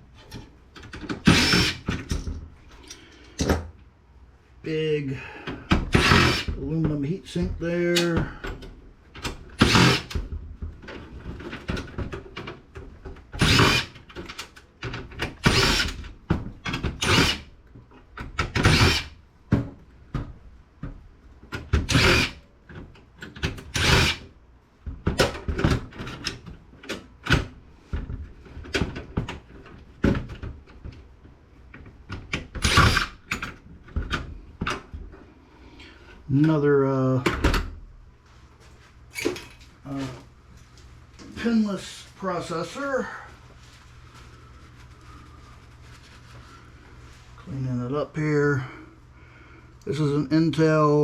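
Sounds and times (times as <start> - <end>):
cordless drill bursts: 1.2 - 1.9, 5.9 - 6.5, 9.6 - 10.1, 13.4 - 14.0, 15.4 - 16.0, 17.0 - 17.5, 18.6 - 19.1, 21.9 - 22.4, 23.7 - 24.2, 32.6 - 33.2.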